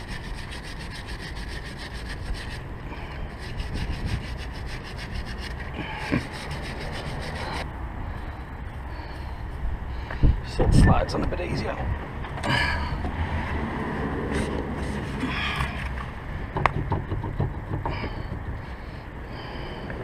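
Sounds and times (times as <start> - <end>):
rapid scraping strokes: 0.0 - 7.7
low steady rumble: 0.0 - 20.0
knock: 16.6 - 18.4.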